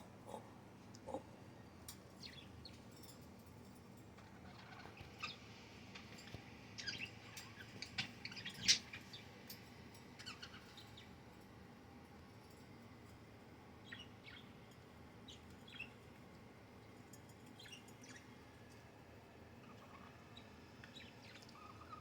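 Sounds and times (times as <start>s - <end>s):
budgerigars chirping: 10.2s - 11.0s.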